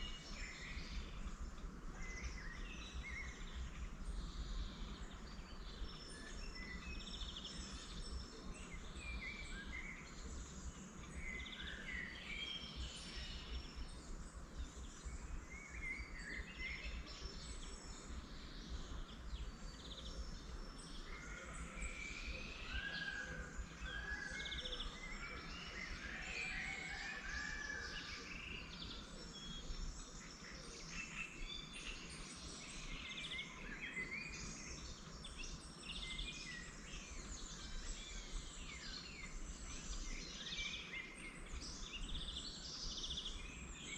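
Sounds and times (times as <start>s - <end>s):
songbirds singing and chirping: 0.0s - 43.9s.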